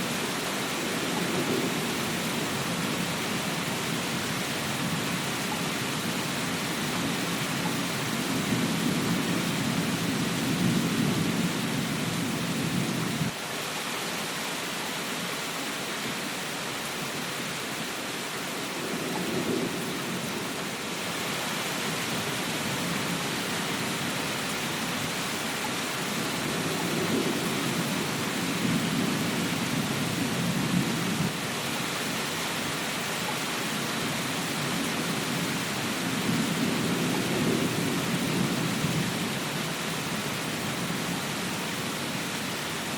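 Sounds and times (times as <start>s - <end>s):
steady rain falling: 0.0s - 42.9s
low rumbles of thunder: 0.8s - 13.3s, 18.7s - 20.6s, 34.6s - 41.1s.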